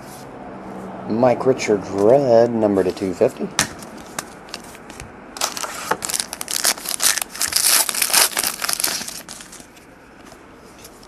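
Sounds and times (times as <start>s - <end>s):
card pack wrapper crinkling and tearing: 5.4s - 9.7s.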